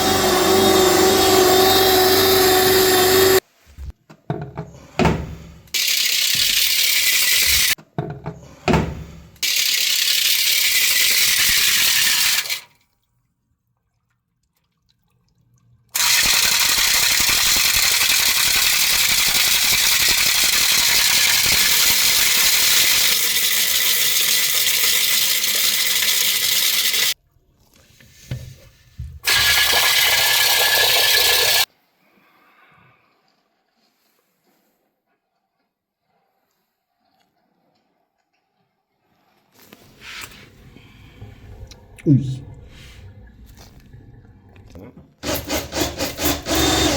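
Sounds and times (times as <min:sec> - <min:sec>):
drain-cleaning machine hissing: 0:00.0 - 0:03.4, 0:05.8 - 0:07.8, 0:09.4 - 0:12.6, 0:16.0 - 0:27.2, 0:29.2 - 0:31.7.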